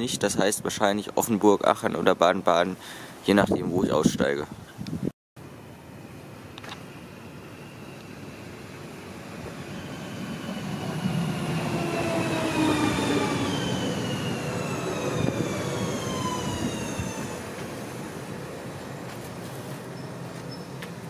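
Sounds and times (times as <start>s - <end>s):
train rumble: 7.3s - 21.0s
train brakes whining: 7.4s - 18.4s.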